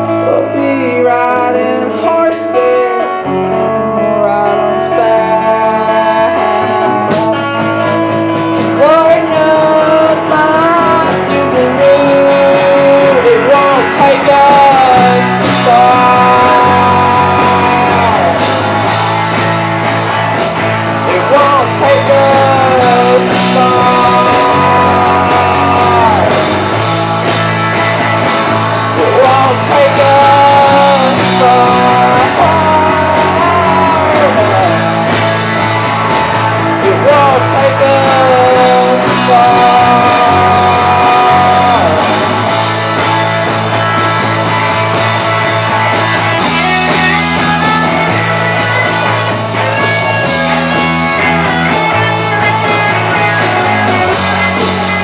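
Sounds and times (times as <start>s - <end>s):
bending lead guitar melody: 0.0s - 55.0s
live rock band playing: 0.0s - 55.0s
drum beat: 7.1s - 55.0s.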